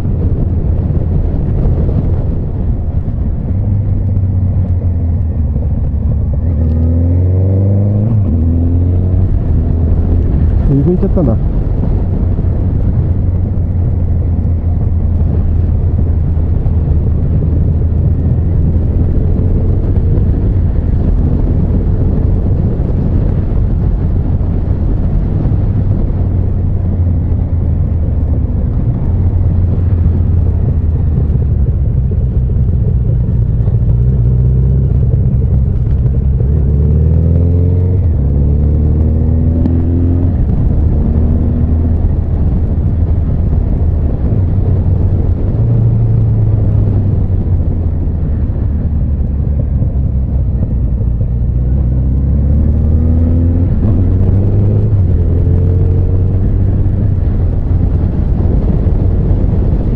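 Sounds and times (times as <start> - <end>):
motorcycle engine droning: 0.0 - 59.9.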